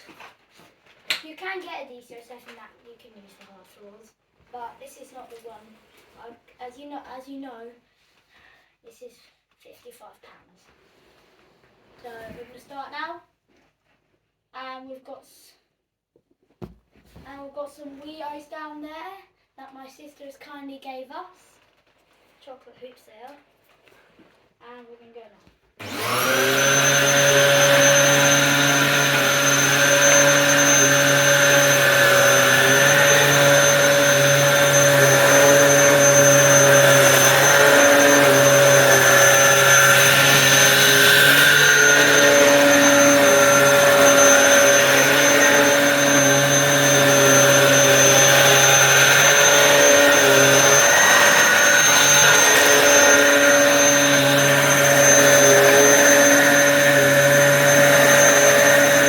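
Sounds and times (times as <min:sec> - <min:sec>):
upright vacuum cleaner running: 0:25.8 - 0:59.0.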